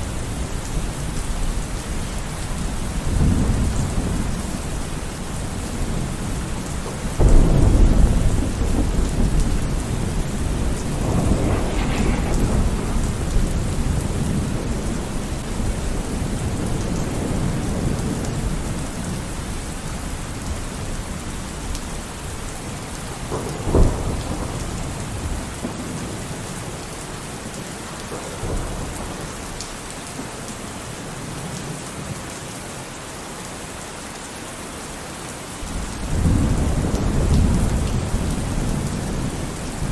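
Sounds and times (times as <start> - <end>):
heavy rain: 0.0 - 39.9
thunder rumbling: 2.3 - 21.3, 22.2 - 26.8
sharp thunder clap: 7.2 - 18.2.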